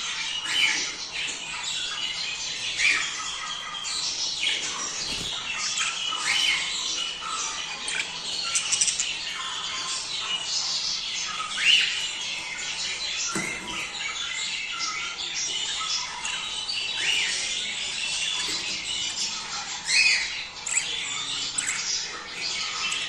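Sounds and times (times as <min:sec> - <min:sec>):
budgerigars chattering: 0:00.0 - 0:23.0.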